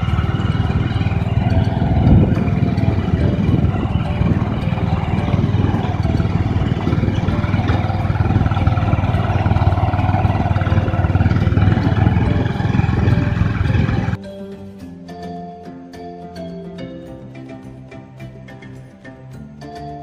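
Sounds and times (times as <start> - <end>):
motorcycle engine rumbling: 0.0 - 14.2.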